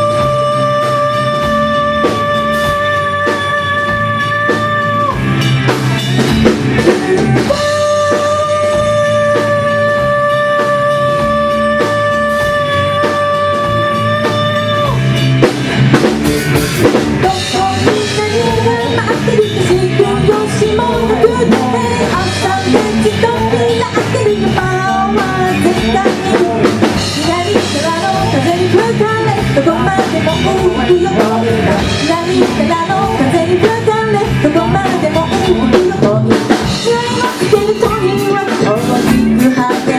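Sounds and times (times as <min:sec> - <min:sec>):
person singing: 0:00.0 - 0:05.5, 0:06.2 - 0:15.4, 0:17.1 - 0:39.9
rock band playing live: 0:00.0 - 0:39.9.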